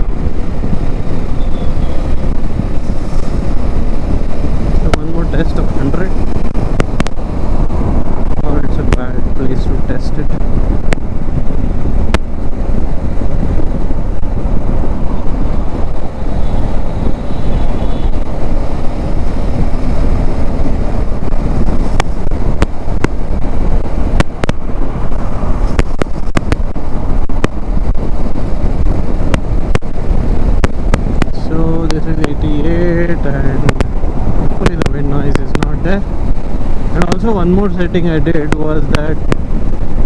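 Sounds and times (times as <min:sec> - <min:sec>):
road noise: 0:00.0 - 0:40.0
wind rumble on microphone: 0:00.0 - 0:40.0
motorcycle engine: 0:10.2 - 0:37.7.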